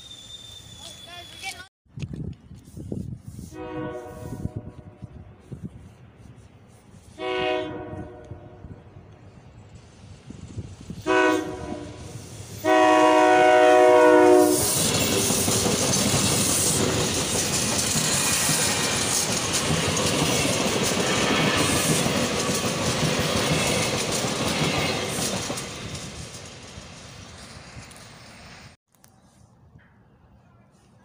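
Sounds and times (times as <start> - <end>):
train horn blast: 3.4 - 5.2, 7.1 - 8.8, 11.0 - 14.8
train wheels rushing on rails: 8.7 - 28.8.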